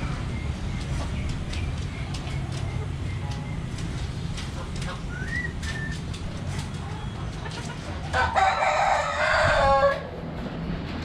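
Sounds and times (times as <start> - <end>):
rooster crowing: 8.1 - 10.1.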